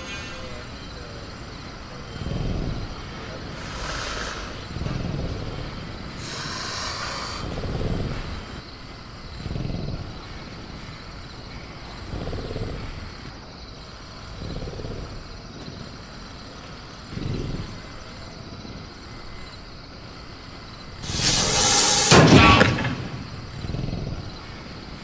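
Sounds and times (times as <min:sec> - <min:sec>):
crickets chirring: 0:00.0 - 0:25.0
burst of hiss: 0:03.6 - 0:04.6, 0:06.2 - 0:07.6, 0:21.0 - 0:24.0.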